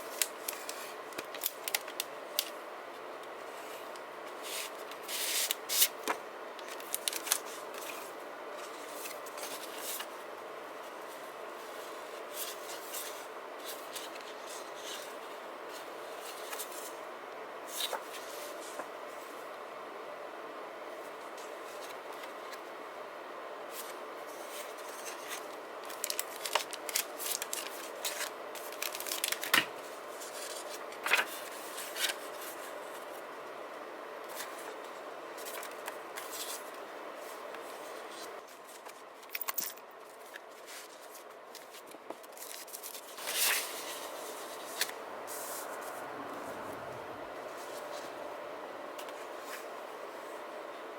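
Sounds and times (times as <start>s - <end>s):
paper and stickers rustling: 0.0s - 10.2s, 23.7s - 33.2s, 34.2s - 39.3s, 40.0s - 48.2s
steady background hiss: 42.7s - 50.9s.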